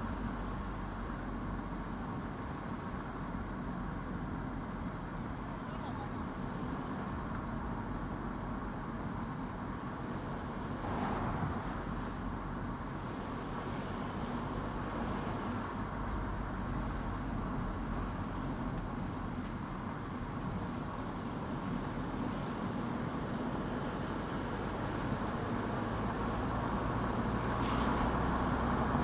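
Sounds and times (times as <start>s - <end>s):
car engine hum: 0.0s - 29.0s
tyre and road noise: 6.0s - 29.0s.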